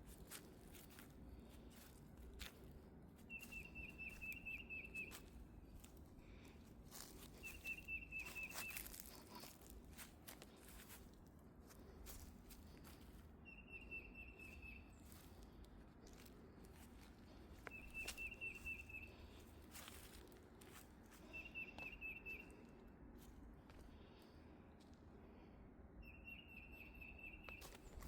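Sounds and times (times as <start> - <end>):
faint footsteps on a trail: 0.0 - 25.5, 27.0 - 28.0
songbird singing: 3.2 - 11.0, 12.1 - 23.0, 26.0 - 28.0.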